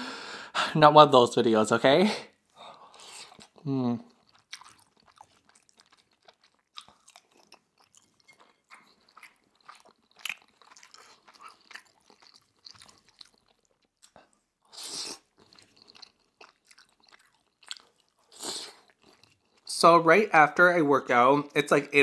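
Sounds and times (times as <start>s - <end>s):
close chewing with mouth clicks: 2.7s - 19.7s.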